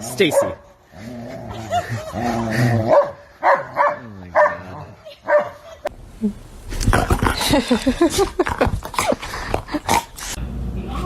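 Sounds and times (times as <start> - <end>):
dog barking in short calls: 2.9 - 4.6.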